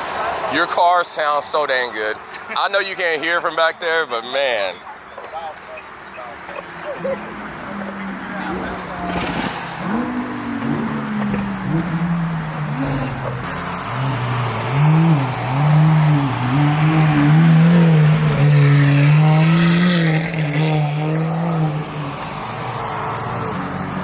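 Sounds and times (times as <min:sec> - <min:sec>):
car engine revving lightly: 0:05.9 - 0:24.0.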